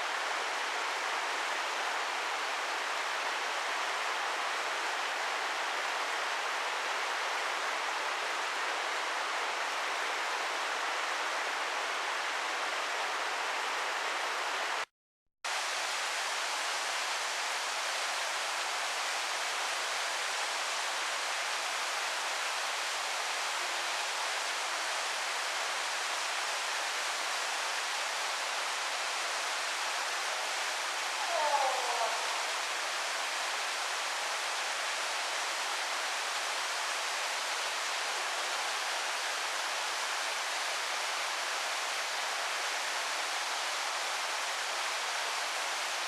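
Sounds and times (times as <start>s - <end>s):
waterfall rushing: 15.5s - 46.0s.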